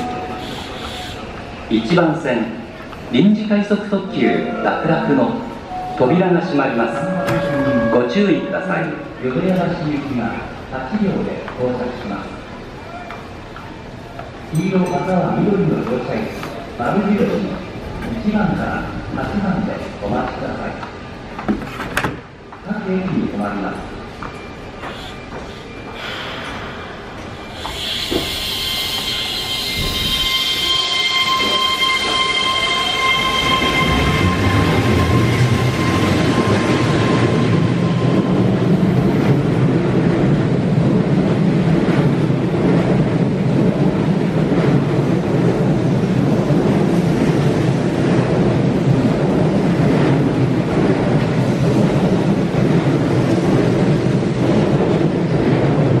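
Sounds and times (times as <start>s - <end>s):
train wheels rumbling on rails: 0.0s - 56.0s
electric train high whine: 3.8s - 9.5s, 24.3s - 39.8s.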